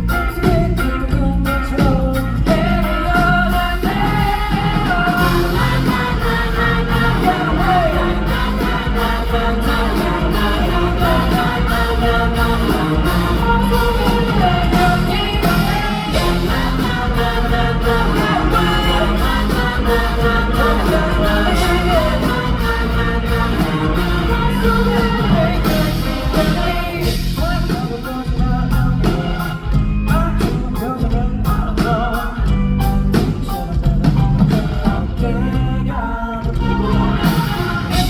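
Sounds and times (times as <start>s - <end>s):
lead singer singing: 0.0s - 38.0s
rock band playing: 0.0s - 38.0s.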